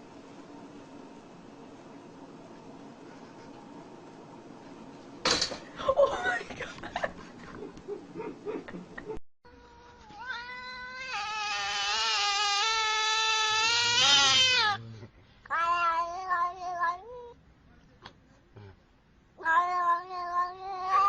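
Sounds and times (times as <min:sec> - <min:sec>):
cat yowling: 0:10.0 - 0:14.8, 0:15.5 - 0:17.3, 0:19.4 - 0:21.0.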